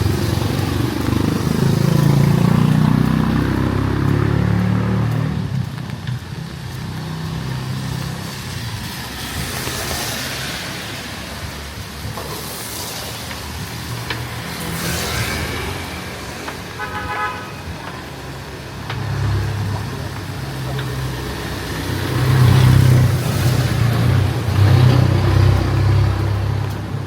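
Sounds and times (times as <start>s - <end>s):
vehicle engines running: 0.0s - 27.0s
vehicles passing with tyre hiss: 0.0s - 27.0s
car horn toot: 16.8s - 17.7s.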